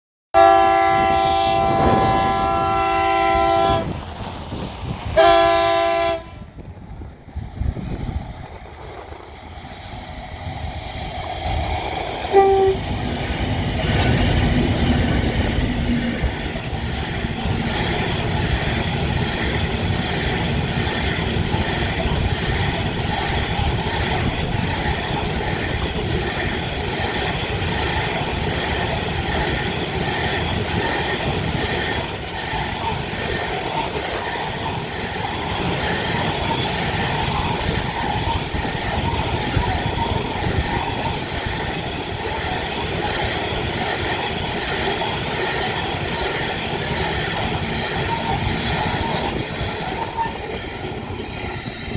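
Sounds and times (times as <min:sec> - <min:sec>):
train horn blasts: 0:00.3 - 0:04.0, 0:05.2 - 0:06.6, 0:12.3 - 0:13.0
freight train rolling past: 0:00.4 - 0:51.9
wheels clacking over rail joints: 0:09.7 - 0:51.9.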